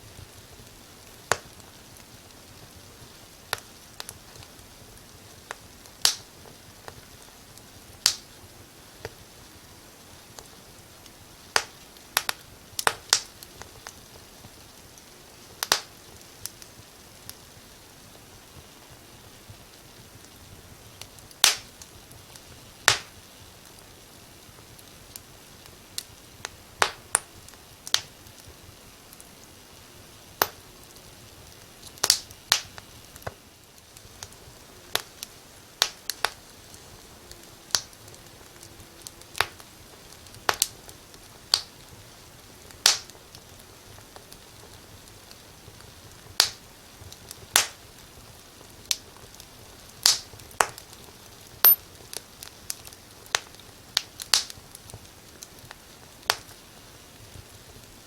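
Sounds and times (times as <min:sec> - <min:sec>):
faint steady hiss: 0:00.0 - 0:58.0
wood fire crackling: 0:00.0 - 0:58.0.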